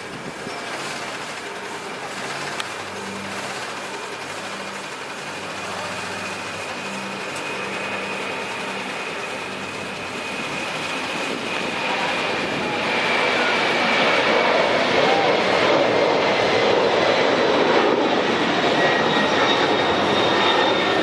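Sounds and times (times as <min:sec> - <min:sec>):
jet engines running: 0:00.0 - 0:21.0.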